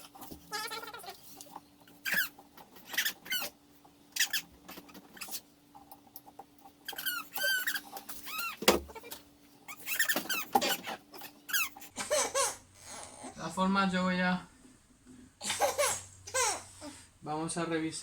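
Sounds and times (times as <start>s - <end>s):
faint steady hum: 0.0s - 18.0s
baby squealing and babbling: 0.5s - 1.2s.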